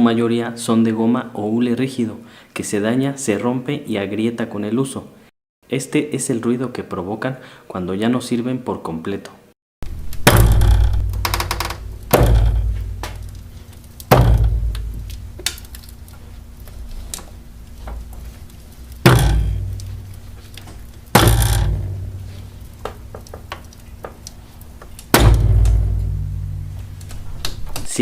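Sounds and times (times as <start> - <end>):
heavy knocking thuds: 9.8 - 16.0, 19.0 - 24.2, 24.8 - 27.9.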